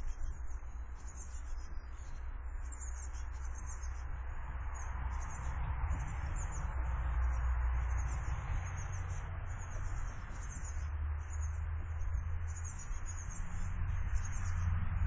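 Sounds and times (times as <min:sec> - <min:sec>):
low rumble: 0:04.4 - 0:12.6.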